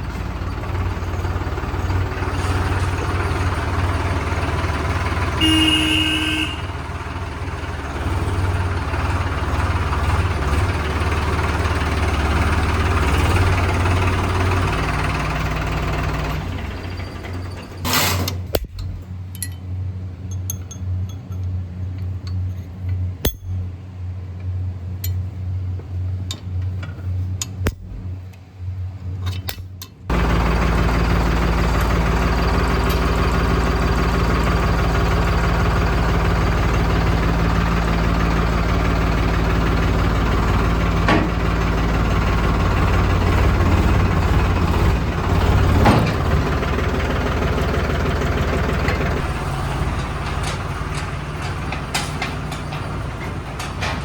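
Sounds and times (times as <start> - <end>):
tractor diesel engine humming: 0.0 - 54.0
metal clinks: 18.6 - 22.7, 23.3 - 23.7.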